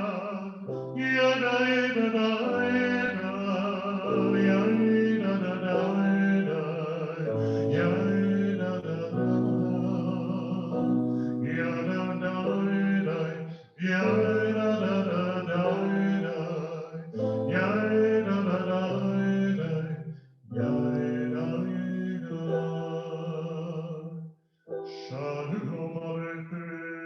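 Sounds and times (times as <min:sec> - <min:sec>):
men singing liturgical melody: 0:00.0 - 0:10.8
keyboard accompaniment: 0:00.0 - 0:27.0.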